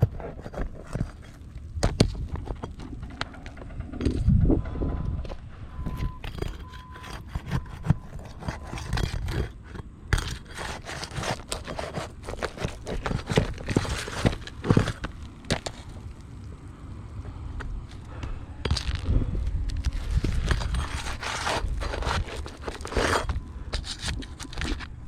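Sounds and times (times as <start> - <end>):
scraping and crackling shingle: 0.0 - 25.0.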